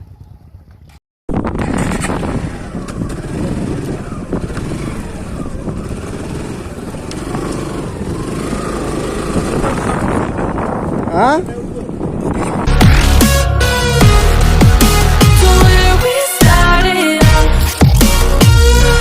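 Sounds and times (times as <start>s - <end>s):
motorcycle engine running: 0.0s - 13.2s
road and wind noise: 0.0s - 16.0s.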